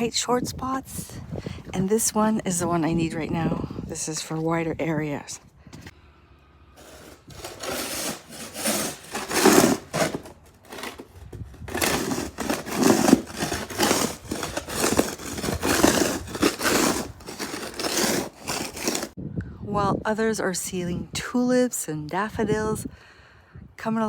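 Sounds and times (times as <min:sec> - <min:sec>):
snow shovel scraping snow: 0:06.8 - 0:19.2.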